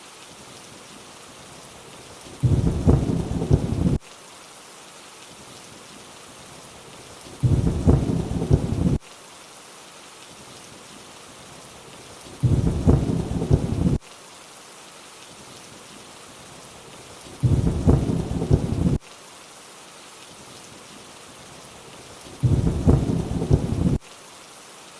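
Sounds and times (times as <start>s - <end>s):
steady rainfall hiss: 0.0s - 24.9s
low rumble of thunder: 2.4s - 4.0s, 7.4s - 9.0s, 12.4s - 14.0s, 17.4s - 19.0s, 22.4s - 24.0s.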